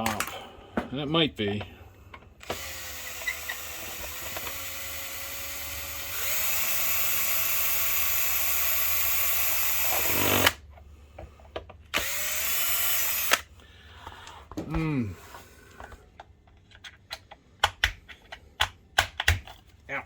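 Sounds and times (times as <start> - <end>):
power screwdriver motor running: 2.4 - 10.6, 12.0 - 13.5.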